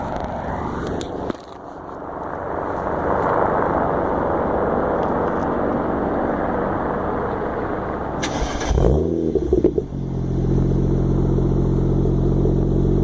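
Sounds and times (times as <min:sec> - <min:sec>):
car engine idling: 0:07.2 - 0:13.0.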